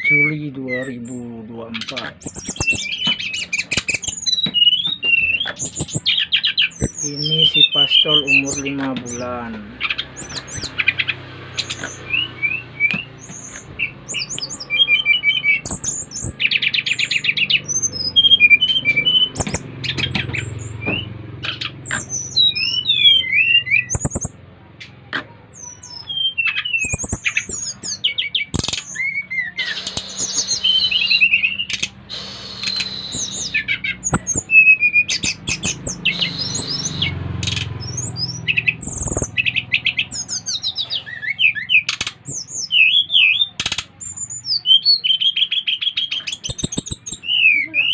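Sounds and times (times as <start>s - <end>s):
songbirds singing: 0.0s - 47.9s
sharp clicks: 1.9s - 7.2s, 12.8s - 14.8s, 15.5s - 17.9s, 18.8s - 22.7s, 23.9s - 25.3s, 25.9s - 40.5s, 41.8s - 42.6s, 46.3s - 47.3s.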